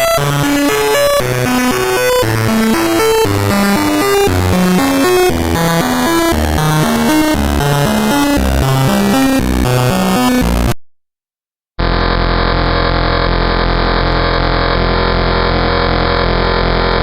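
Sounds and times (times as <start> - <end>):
buzzing synthesizer drone: 0.0 - 10.8, 11.8 - 17.0
low electronic tones pattern: 0.0 - 10.8.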